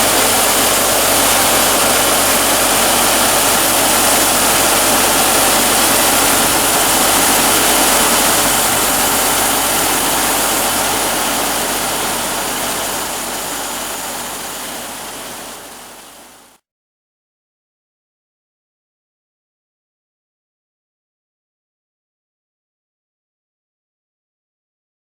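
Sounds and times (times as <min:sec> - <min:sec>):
wide rushing noise: 0:00.0 - 0:16.3
sawmill engine hum: 0:00.0 - 0:16.6.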